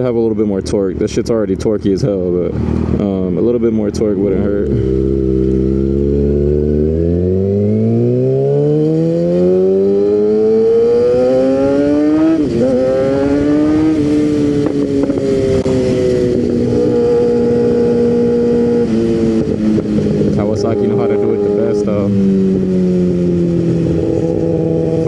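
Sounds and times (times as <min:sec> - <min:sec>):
motorcycle engine accelerating: 0:02.0 - 0:25.0
wind rush over microphone: 0:10.4 - 0:25.0.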